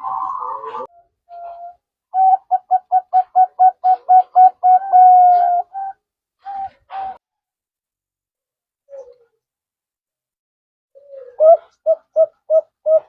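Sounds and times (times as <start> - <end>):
dove cooing: 0.0 - 7.2, 11.0 - 13.0.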